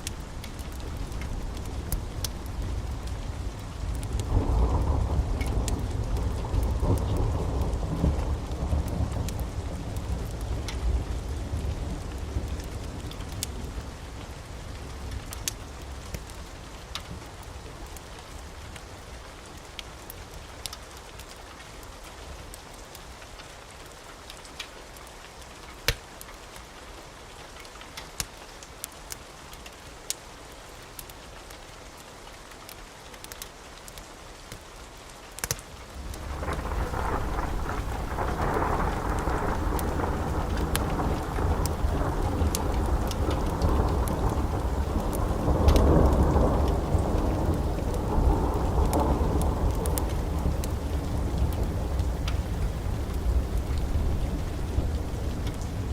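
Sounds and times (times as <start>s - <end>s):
flames rushing rumble: 0.0s - 17.1s, 35.4s - 55.9s
wood fire crackling and popping: 0.0s - 23.5s, 30.9s - 55.9s.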